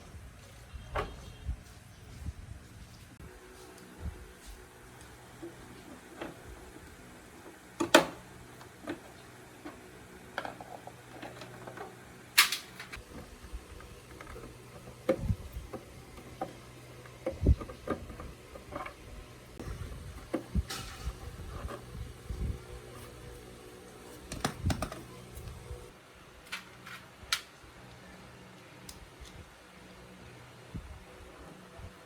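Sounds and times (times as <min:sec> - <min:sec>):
hard objects knocking and clicking: 0:24.3 - 0:25.1.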